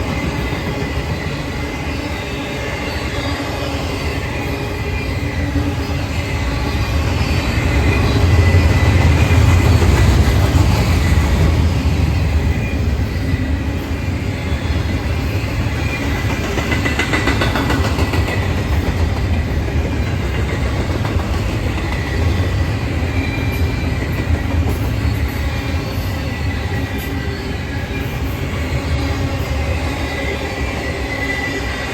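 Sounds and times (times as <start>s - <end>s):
freight train wheels rumbling: 0.0s - 31.9s
wheels clicking over rail joints: 16.1s - 22.6s
high wheel squeal: 21.7s - 31.9s.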